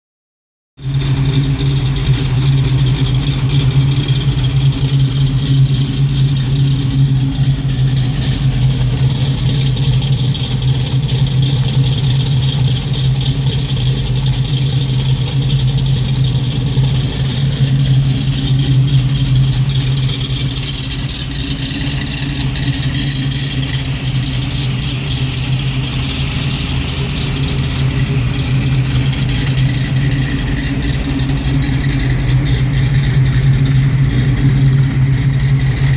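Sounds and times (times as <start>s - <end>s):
car engine idling: 0.8s - 35.9s.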